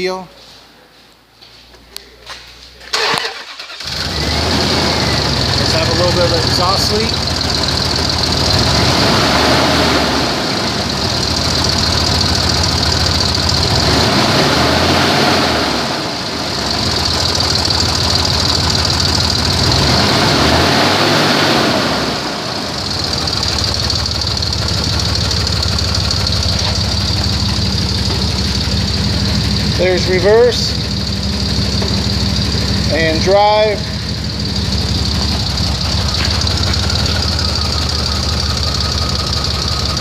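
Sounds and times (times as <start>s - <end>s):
truck engine idling and revving: 2.8s - 40.0s
person talking: 29.7s - 30.8s, 32.8s - 34.0s.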